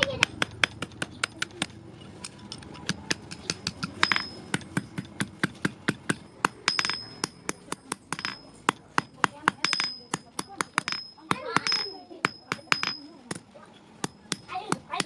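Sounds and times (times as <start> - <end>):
hammer striking iron on anvil: 2.9 - 13.4, 14.0 - 15.0.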